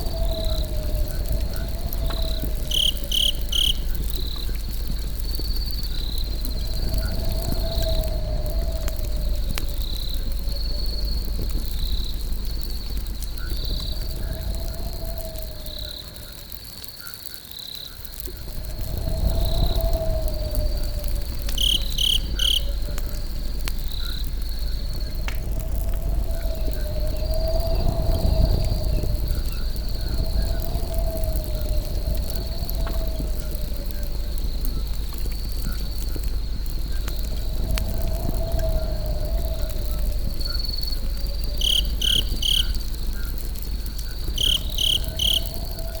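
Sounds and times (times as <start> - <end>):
low rumble: 0.0 - 16.6, 18.1 - 46.0
campfire crackling: 0.0 - 46.0
crickets trilling: 0.0 - 46.0.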